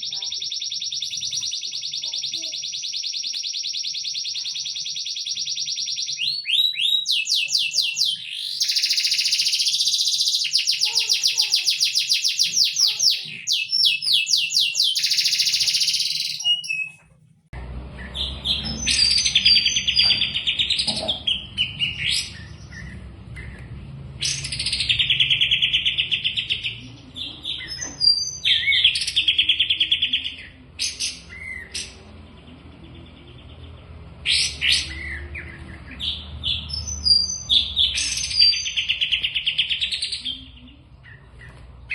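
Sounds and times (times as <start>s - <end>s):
songbirds trilling: 0.0s - 16.9s.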